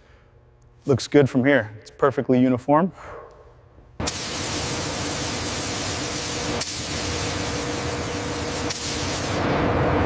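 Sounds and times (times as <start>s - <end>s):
faint hum: 0.0s - 10.0s
spray gun hissing: 4.0s - 9.4s.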